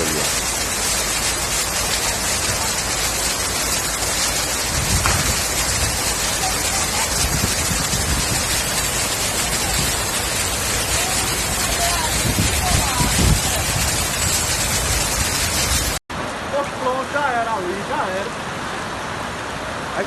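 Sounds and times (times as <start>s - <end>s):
low rumbles: 0.0s - 16.0s
heavy rain hissing: 0.0s - 20.0s
rushing floodwater: 0.0s - 20.0s.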